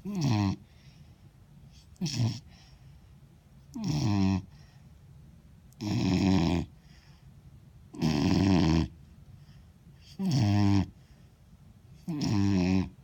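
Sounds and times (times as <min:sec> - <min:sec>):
puppy snoring: 0:00.0 - 0:00.7, 0:01.7 - 0:02.7, 0:03.7 - 0:04.6, 0:05.7 - 0:06.8, 0:07.9 - 0:09.0, 0:10.0 - 0:11.0, 0:12.0 - 0:13.0.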